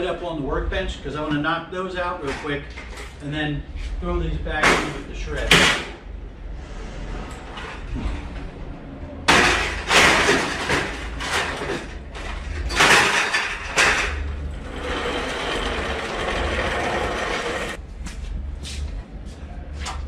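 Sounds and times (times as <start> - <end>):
steady rough noise: 3.4 - 18.4
metal scrap clattering and banging: 4.6 - 6.0, 9.2 - 17.8.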